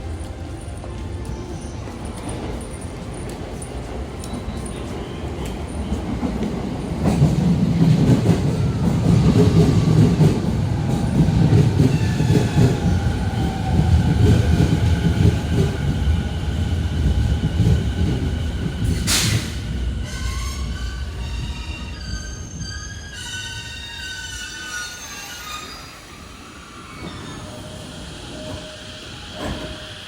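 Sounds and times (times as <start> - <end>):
train wheels rumbling on rails: 0.0 - 30.0
air hiss: 18.9 - 19.7.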